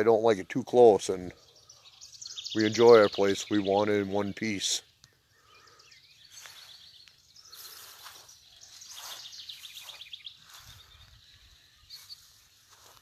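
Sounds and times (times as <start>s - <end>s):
songbirds singing trilled chirps: 0.0s - 13.0s
footsteps swishing through grass: 7.5s - 13.0s.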